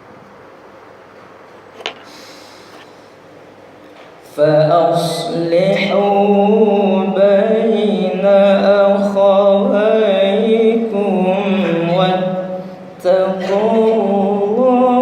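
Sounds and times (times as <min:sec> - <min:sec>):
man reciting melodically: 0:04.2 - 0:15.0.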